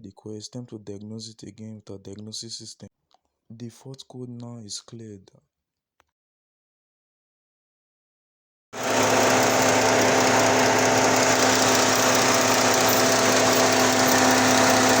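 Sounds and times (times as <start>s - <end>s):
car engine idling: 8.8s - 15.0s.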